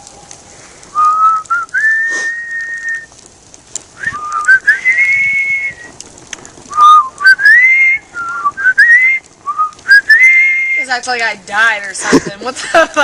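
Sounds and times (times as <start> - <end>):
faint crackles: 0.0 - 13.0
person whistling: 1.0 - 3.1, 4.0 - 5.9, 6.7 - 10.8.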